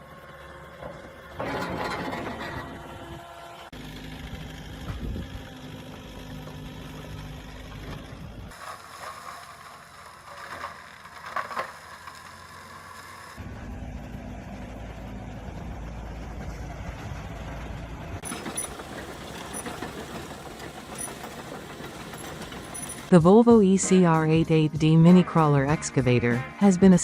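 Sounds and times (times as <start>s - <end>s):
excavator engine drone: 0.0s - 27.0s
clicking and rattling: 18.2s - 23.1s
metallic clanks: 18.2s - 23.1s.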